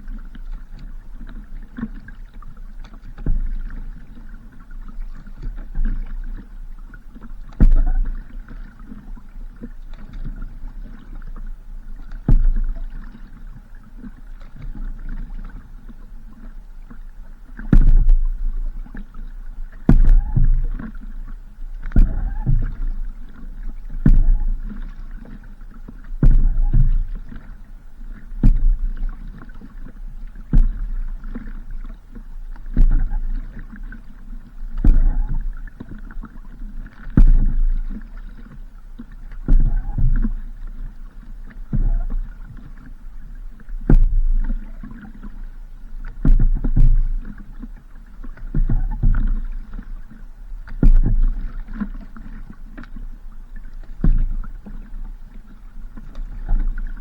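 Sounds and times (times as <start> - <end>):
paddle knocking on boat: 0.0 - 57.0
water rushing from paddle strokes: 0.0 - 57.0
steady low rumble: 26.2 - 27.3.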